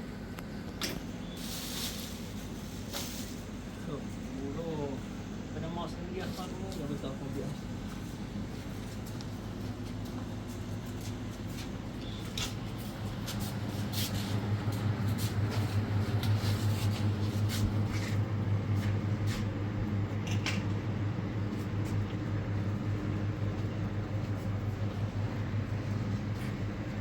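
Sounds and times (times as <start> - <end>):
low motor hum: 6.6 - 27.0.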